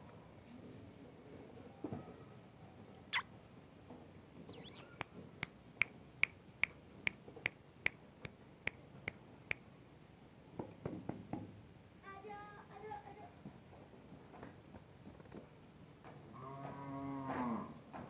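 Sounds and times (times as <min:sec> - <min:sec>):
sharp clicks: 0:04.5 - 0:04.9
short high squeak: 0:04.5 - 0:05.0.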